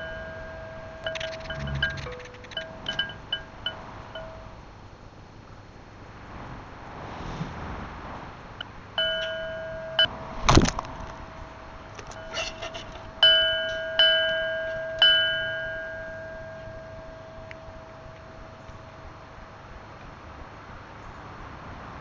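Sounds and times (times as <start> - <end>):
small metal bell ringing: 0.0 - 4.6, 9.0 - 10.1, 11.4 - 19.4.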